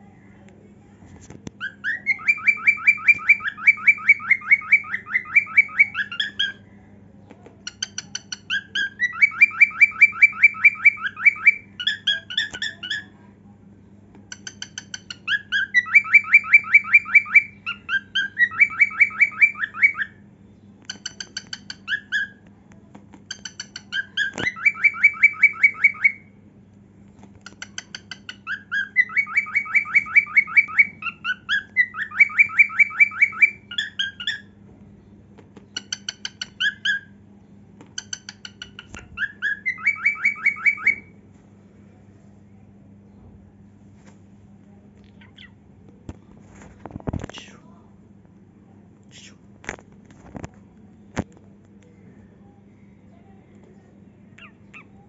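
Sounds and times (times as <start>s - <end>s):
cockatiel singing: 1.6s - 6.6s, 7.6s - 13.2s, 14.3s - 20.2s, 20.8s - 22.4s, 23.3s - 26.4s, 27.4s - 34.6s, 35.6s - 37.2s, 37.9s - 41.1s, 45.2s - 45.6s, 54.3s - 55.0s.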